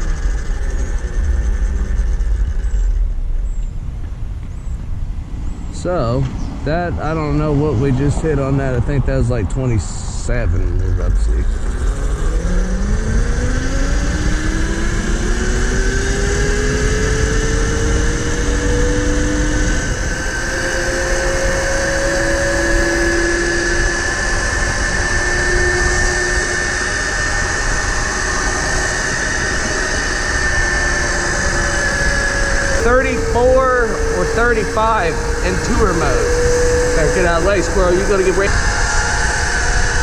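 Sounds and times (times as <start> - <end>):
loud low rumble: 0.0 - 40.0
electric motor whining: 10.5 - 40.0.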